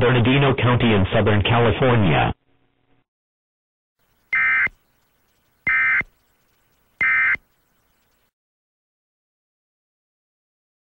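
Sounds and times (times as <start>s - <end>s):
digital data tone bursts: 4.3s - 4.8s, 5.6s - 6.1s, 7.0s - 7.4s.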